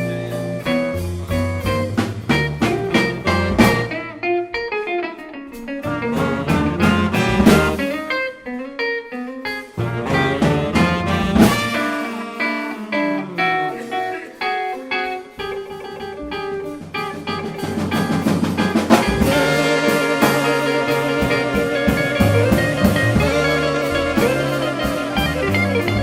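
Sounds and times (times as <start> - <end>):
jazz group playing blues: 0.0 - 26.0
guitar single-note lines: 20.4 - 26.0.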